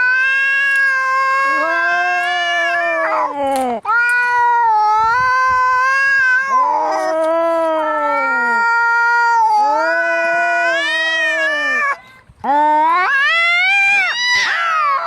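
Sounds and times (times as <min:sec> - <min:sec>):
cats yowling: 0:00.0 - 0:12.0, 0:12.8 - 0:15.0.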